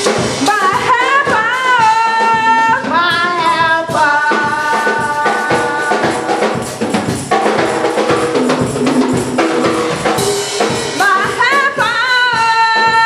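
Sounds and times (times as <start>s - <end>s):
drum kit beat: 0.0s - 13.0s
gospel worship music: 0.0s - 13.0s
tambourine: 3.9s - 13.0s.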